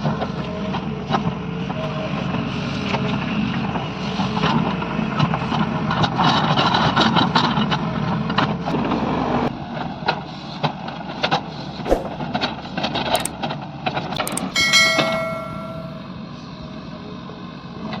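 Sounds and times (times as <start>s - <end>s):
ringing metallic squeal: 14.3s - 16.1s.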